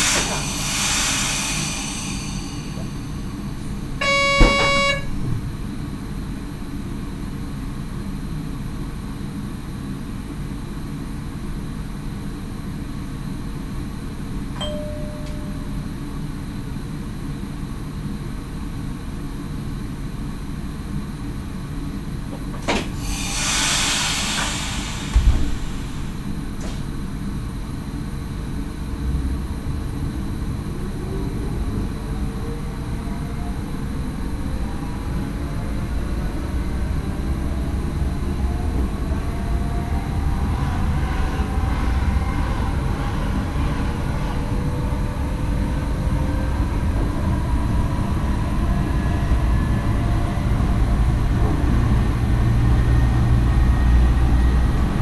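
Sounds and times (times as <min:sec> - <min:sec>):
compressed air hiss: 0:00.0 - 0:05.0, 0:22.9 - 0:26.8
train cab low rumble: 0:00.0 - 0:55.0
short beep: 0:04.0 - 0:05.1, 0:14.6 - 0:15.7
thump: 0:25.1 - 0:25.6.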